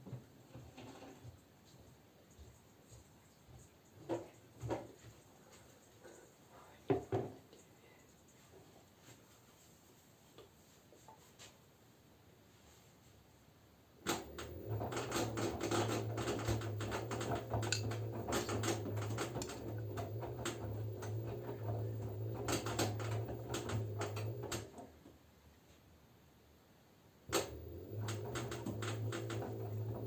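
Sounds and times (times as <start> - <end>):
washing machine drum spinning: 14.0 - 24.9, 27.3 - 30.0.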